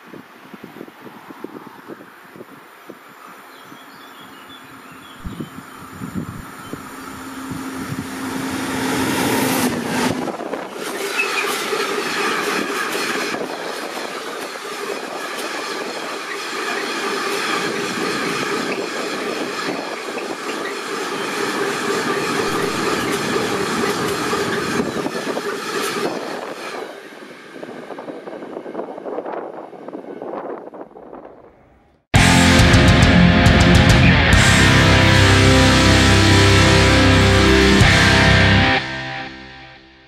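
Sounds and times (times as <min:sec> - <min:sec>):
train wheels rolling on rails: 0:04.5 - 0:32.2.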